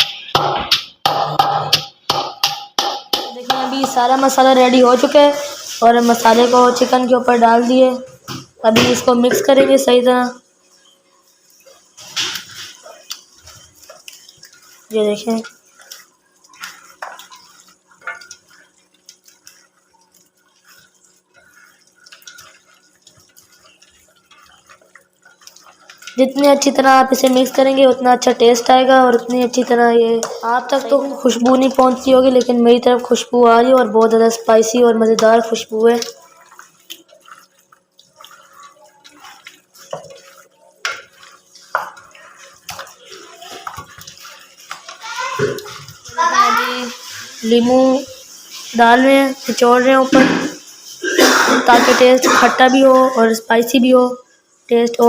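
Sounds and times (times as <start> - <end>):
wet squelches of hands mixing: 0.0 - 55.0
hands squelching wet meat: 12.5 - 26.5, 35.2 - 46.0.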